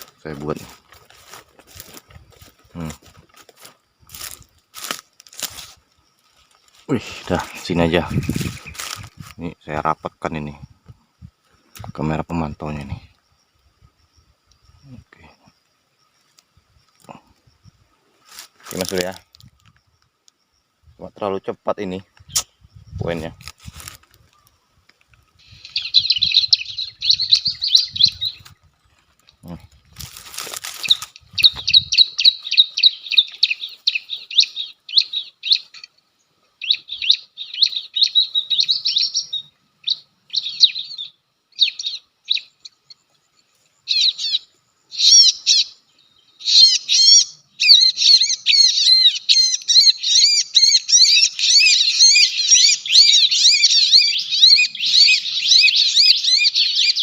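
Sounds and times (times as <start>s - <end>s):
noisy rustle: 0.0s - 9.6s, 22.2s - 32.4s
bird trilled chirps: 25.4s - 28.6s, 30.7s - 57.0s.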